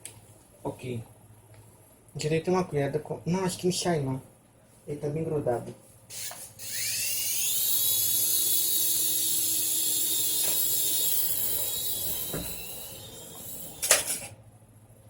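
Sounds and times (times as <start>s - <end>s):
toy helicopter motors whining: 6.1s - 14.3s.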